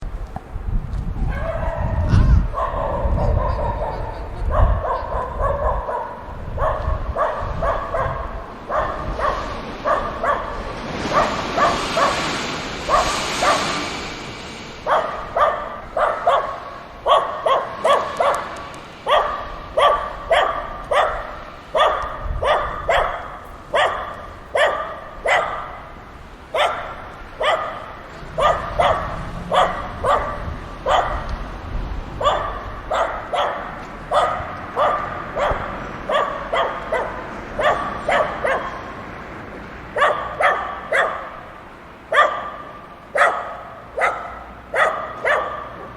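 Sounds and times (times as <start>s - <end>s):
dogs barking: 1.3s - 13.8s, 14.8s - 31.5s, 32.1s - 39.1s, 39.9s - 45.9s
rushing hiss: 9.1s - 20.3s.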